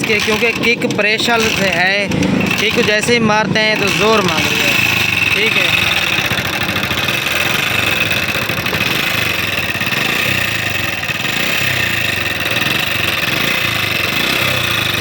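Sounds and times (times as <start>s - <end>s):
motorcycle engine idling: 0.0s - 15.0s
timing chain rubbing: 0.0s - 15.0s.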